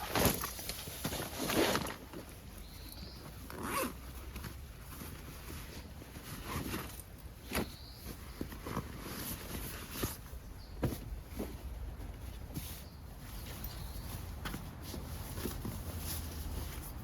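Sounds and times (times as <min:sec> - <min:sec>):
zipper being pulled: 0:03.5 - 0:04.0.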